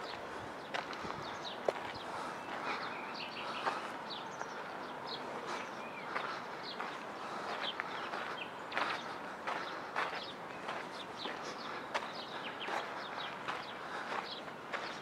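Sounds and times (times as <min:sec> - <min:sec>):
footsteps on sandy path: 0:00.0 - 0:15.0
outdoor background: 0:00.0 - 0:15.0
small birds chirping: 0:00.0 - 0:15.0.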